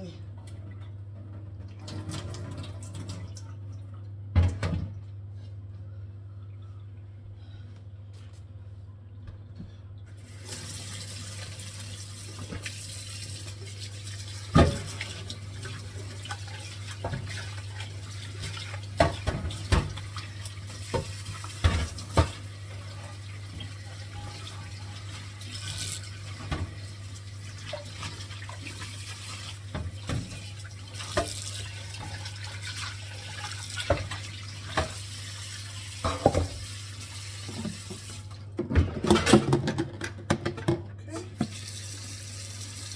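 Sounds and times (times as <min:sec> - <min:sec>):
tap water running into sink: 0:01.6 - 0:03.4, 0:10.2 - 0:38.6, 0:41.4 - 0:42.9
pot and dishes clattering: 0:36.0 - 0:36.6, 0:38.6 - 0:41.5.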